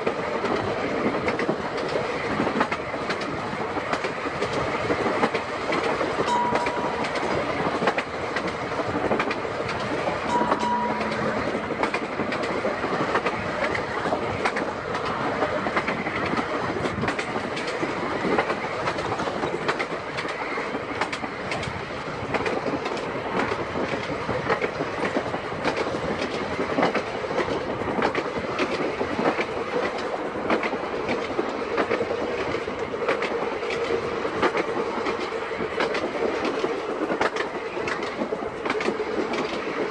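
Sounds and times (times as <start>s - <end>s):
tram rumbling along track: 0.0s - 39.9s
wheels clacking over rail joints: 0.0s - 39.9s
short high tones: 6.3s - 7.6s, 10.3s - 12.4s.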